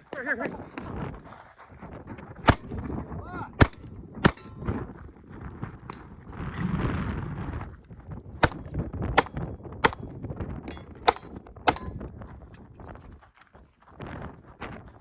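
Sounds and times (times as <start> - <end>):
wind buffeting microphone: 0.0 - 15.0
gunshots: 2.4 - 2.8, 3.6 - 4.7, 8.4 - 10.1, 11.0 - 12.0.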